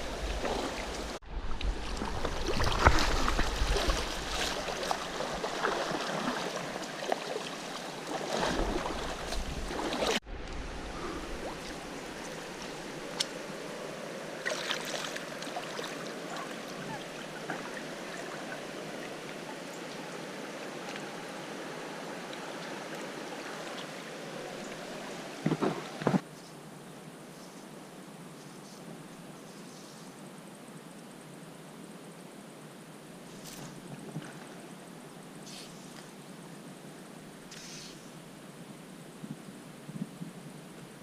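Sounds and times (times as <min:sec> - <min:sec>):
stream water rushing: 0:00.0 - 0:26.2
water splashes: 0:00.0 - 0:26.2.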